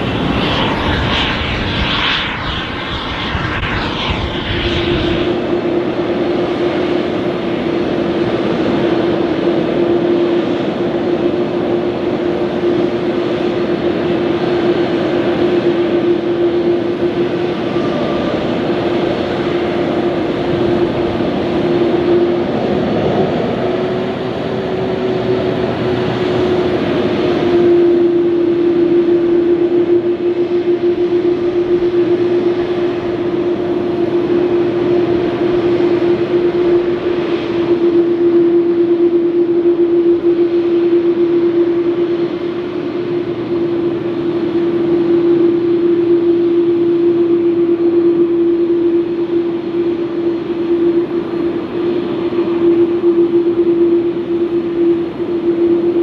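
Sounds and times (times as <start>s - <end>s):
rippling sweeping sound: 0.0s - 6.2s
jet engine whine and rush: 0.0s - 56.0s.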